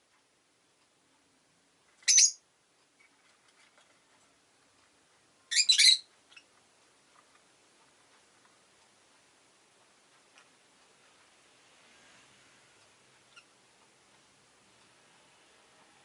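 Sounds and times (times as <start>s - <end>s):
lovebird chirps: 2.0s - 2.4s, 5.5s - 6.5s.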